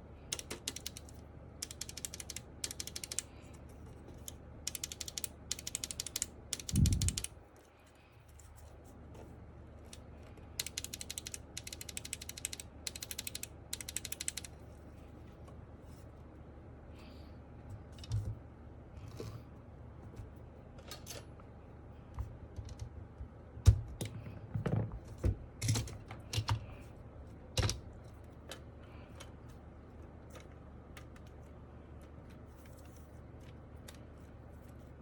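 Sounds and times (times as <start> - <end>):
plastic keyboard parts clicking: 0.3 - 3.3, 4.1 - 7.4, 10.6 - 14.5, 27.6 - 27.8, 30.3 - 31.5.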